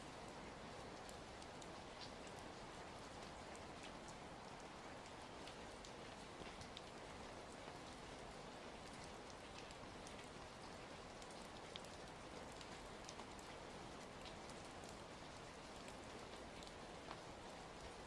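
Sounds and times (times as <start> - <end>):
rain hiss: 0.0 - 18.0
raindrops ticking: 0.2 - 18.0.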